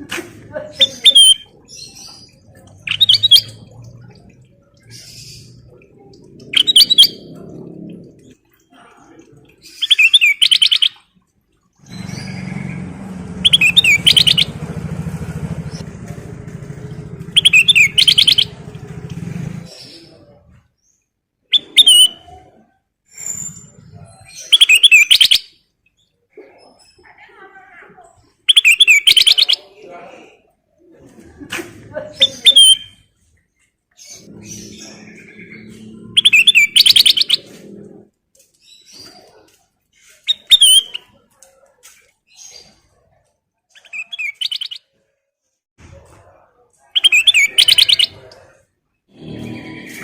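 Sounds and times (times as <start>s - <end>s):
bird chirping: 0.8s - 8.8s, 9.6s - 11.0s, 11.8s - 16.0s, 16.7s - 22.4s, 23.2s - 26.2s, 28.5s - 29.8s, 33.9s - 39.6s, 40.2s - 41.2s, 43.7s - 44.8s, 46.9s - 48.4s
bird singing whistled notes: 2.9s - 3.6s, 6.6s - 7.2s, 9.8s - 11.0s, 13.4s - 14.6s, 17.4s - 18.6s, 21.5s - 22.2s, 24.4s - 25.5s, 34.2s - 37.4s, 40.3s - 41.0s, 43.8s - 44.8s.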